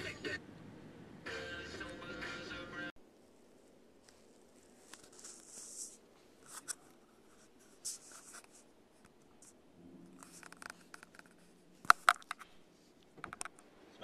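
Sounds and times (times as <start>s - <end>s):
rustling and scraping handling noises: 3.1s - 13.6s.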